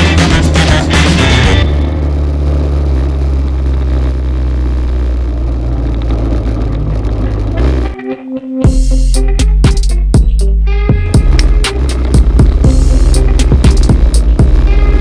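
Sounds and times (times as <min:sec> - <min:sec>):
music: 0:00.0 - 0:01.8, 0:07.5 - 0:15.0
noise haze: 0:00.0 - 0:08.0
vehicle engine running: 0:00.0 - 0:08.0, 0:08.7 - 0:15.0.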